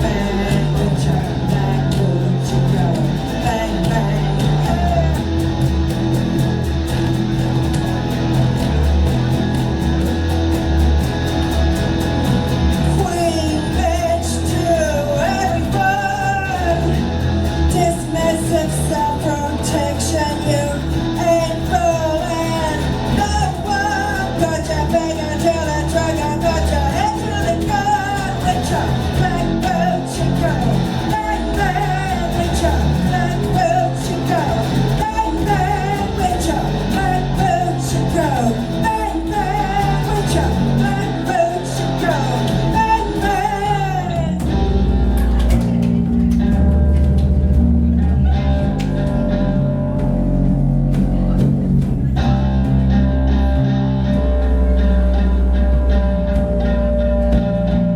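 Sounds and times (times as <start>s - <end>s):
person singing: 0.0s - 5.5s, 12.8s - 45.8s
live rock band playing: 0.0s - 57.9s.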